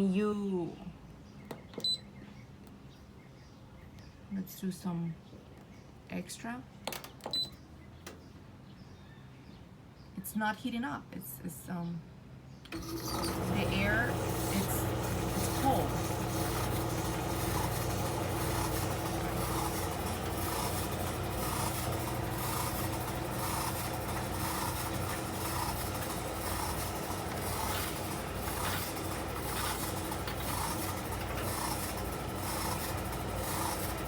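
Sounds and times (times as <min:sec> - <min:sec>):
tumble dryer running: 0:12.7 - 0:34.0
dryer drum rubbing: 0:12.8 - 0:34.0.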